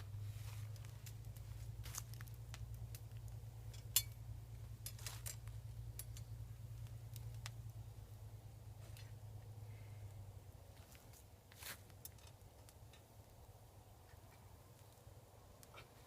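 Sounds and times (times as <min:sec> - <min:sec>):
low hum: 0:00.0 - 0:11.3.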